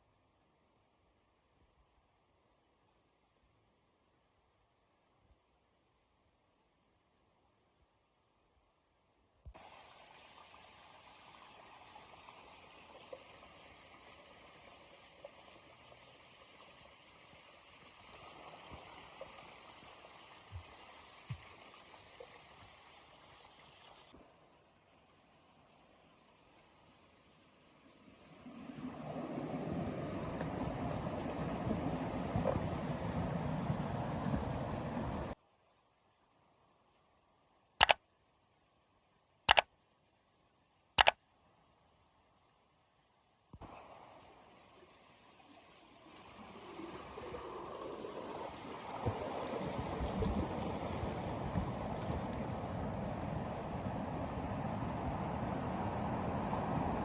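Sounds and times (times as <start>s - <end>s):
flowing stream: 9.5s - 35.4s, 41.8s - 57.0s.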